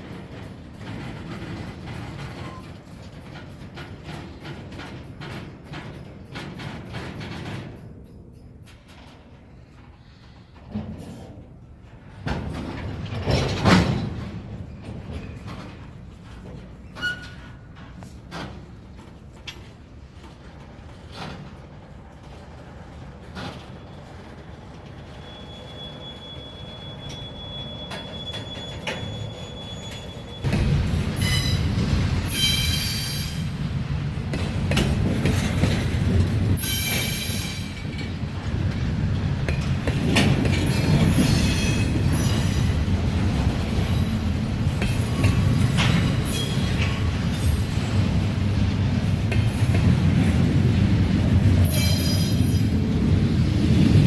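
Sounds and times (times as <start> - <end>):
freight train rumble: 0.0 - 54.0
wheels clacking over rail joints: 0.0 - 54.0
high wheel squeal: 23.8 - 30.5, 31.2 - 31.7, 32.3 - 33.5, 46.2 - 46.8.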